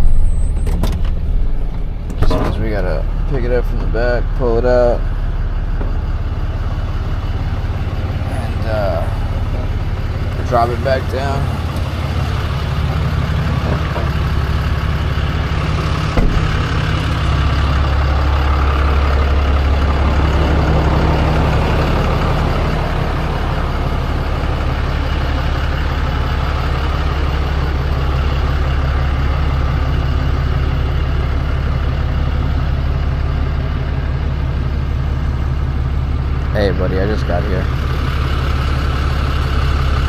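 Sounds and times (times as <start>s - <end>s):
truck engine humming: 0.0s - 40.0s
knock: 16.2s - 16.7s.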